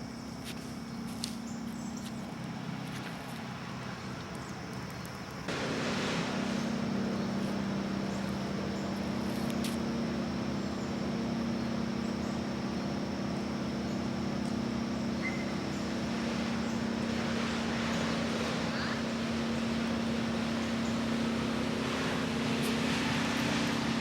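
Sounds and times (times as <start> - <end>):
low mechanical hum: 0.0 - 24.0
hiss: 5.5 - 10.2, 15.4 - 24.0.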